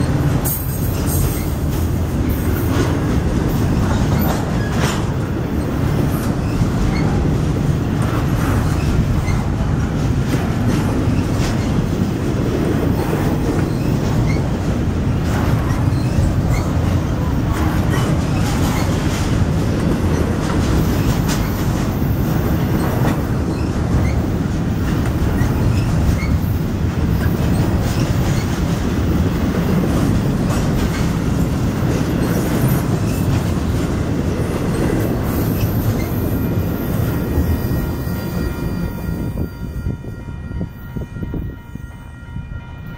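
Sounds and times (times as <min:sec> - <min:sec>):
clacks over rail joints: 0:00.0 - 0:37.6
freight train wheels rumbling: 0:00.0 - 0:42.9
faint high wheel squeal: 0:35.4 - 0:39.9.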